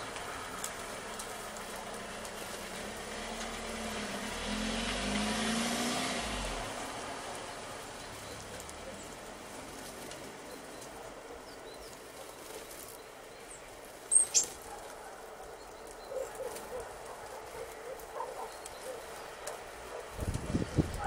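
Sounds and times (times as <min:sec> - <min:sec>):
bird chirps: 0:10.4 - 0:19.5.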